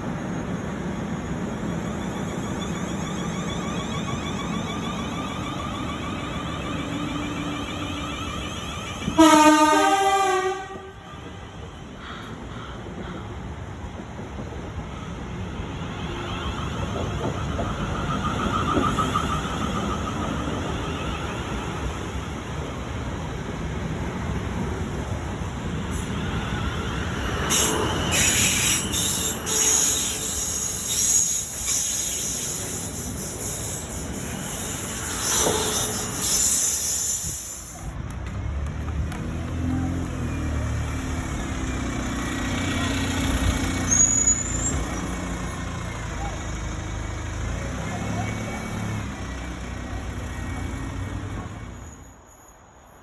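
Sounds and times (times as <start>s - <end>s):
train rumbling: 0.0s - 53.0s
wheels and brakes squealing: 1.0s - 9.4s, 15.0s - 22.3s, 25.9s - 38.0s, 39.4s - 53.0s
vehicle engine rumble: 37.8s - 51.8s.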